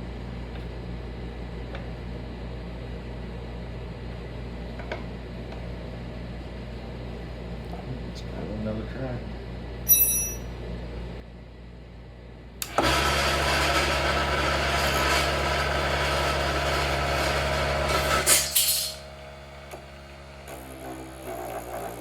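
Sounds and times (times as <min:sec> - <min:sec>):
wood lathe motor whirring: 0:12.6 - 0:22.0.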